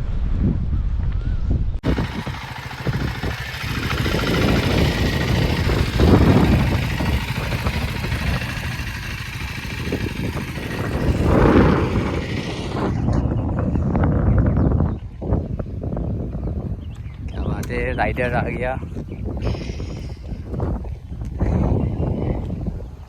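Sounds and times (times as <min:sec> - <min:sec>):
wind rushing: 0:00.0 - 0:16.7
motorcycle engine running: 0:01.8 - 0:13.4.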